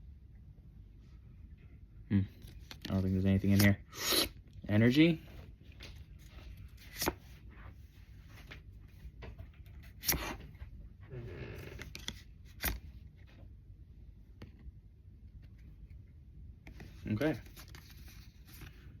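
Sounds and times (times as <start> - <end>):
cards sliding and scraping: 2.4 - 4.4, 6.2 - 8.6, 9.6 - 10.6, 11.7 - 13.3, 16.7 - 19.0.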